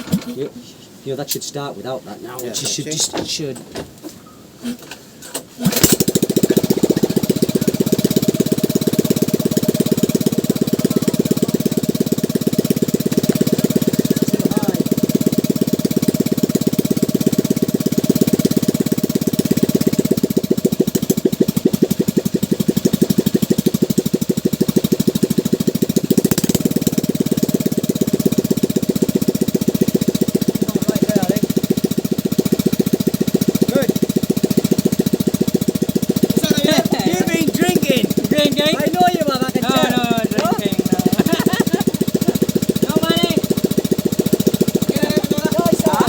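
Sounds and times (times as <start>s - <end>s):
boat engine puttering: 0.0s - 46.0s.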